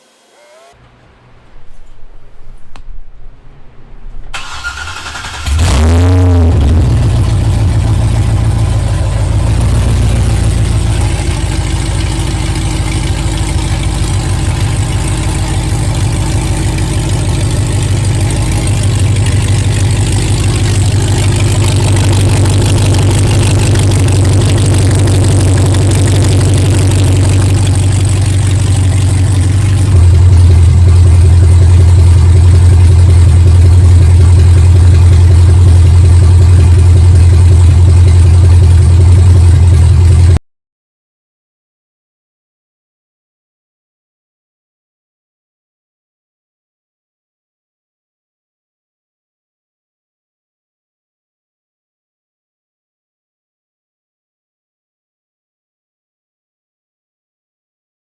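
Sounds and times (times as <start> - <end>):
starter motor cranking: 4.4 - 6.0
engine idling loudly: 4.4 - 40.4.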